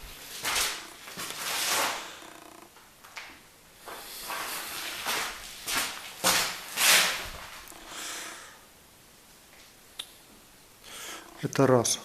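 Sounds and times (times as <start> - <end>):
rustling and shuffling swishes: 3.8 - 7.7.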